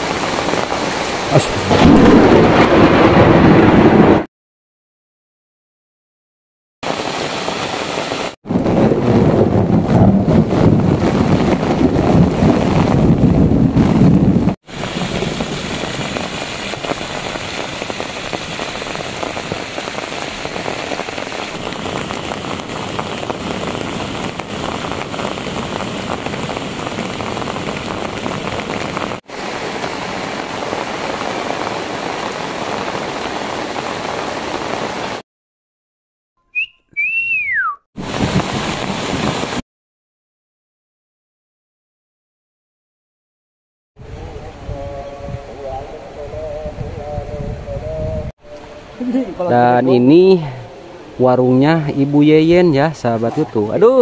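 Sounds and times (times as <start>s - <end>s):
hiss of falling rain: 0.0s - 3.2s, 6.8s - 13.0s, 14.7s - 35.2s, 38.0s - 39.6s
rainwater rushing down bank: 0.0s - 4.0s, 6.8s - 35.2s, 38.0s - 39.6s.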